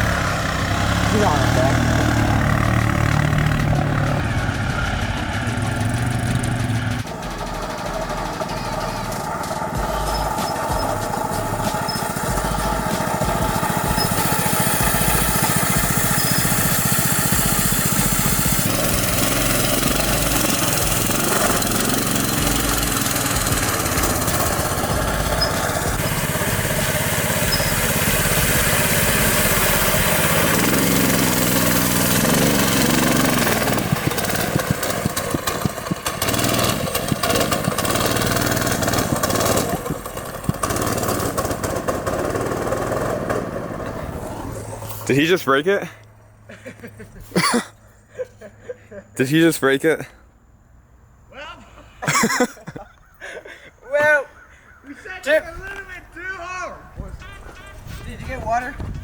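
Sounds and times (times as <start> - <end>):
mini bike engine running: 0.0 - 45.6.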